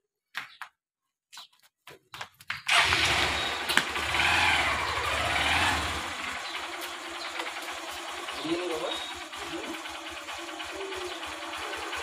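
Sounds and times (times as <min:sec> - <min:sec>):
motorcycle engine running: 0:02.7 - 0:12.0.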